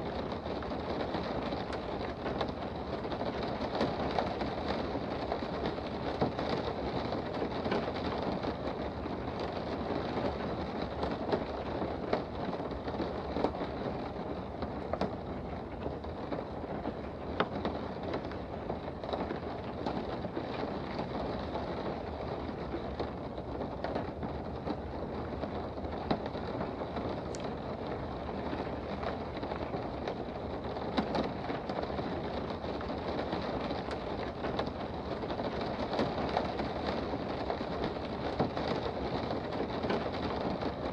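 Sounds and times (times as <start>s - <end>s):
rain patter heard indoors: 0.0s - 40.9s.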